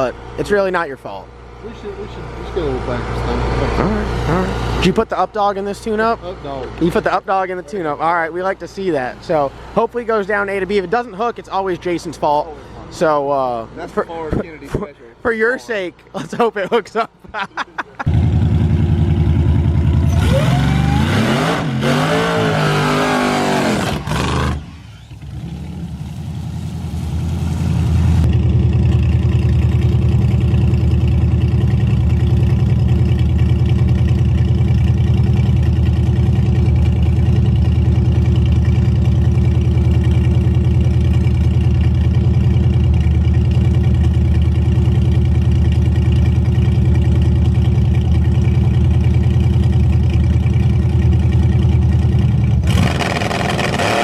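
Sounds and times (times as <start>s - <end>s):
engine idling loudly: 18.1s - 21.1s, 27.0s - 53.8s
drag car engine accelerating: 18.1s - 54.0s.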